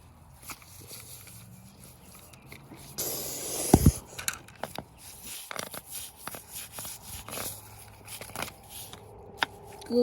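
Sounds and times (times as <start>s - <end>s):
toy cars clicking and scraping: 0.0s - 10.0s
short hiss: 3.0s - 4.1s.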